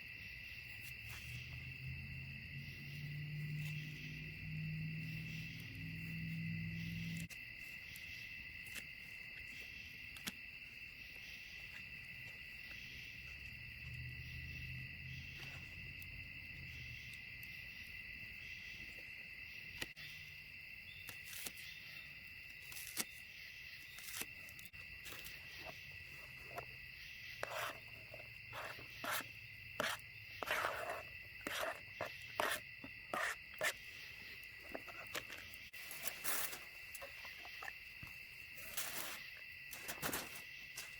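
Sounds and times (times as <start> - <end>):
crickets chirring: 0.0 - 40.9
sharp snaps and crackles: 22.5 - 25.4.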